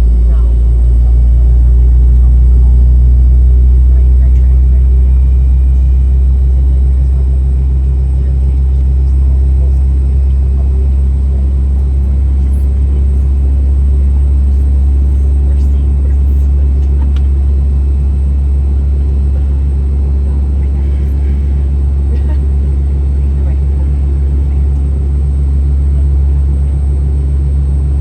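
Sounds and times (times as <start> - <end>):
aircraft engine rumble in cabin: 0.0 - 28.0
faint high whine: 0.0 - 28.0.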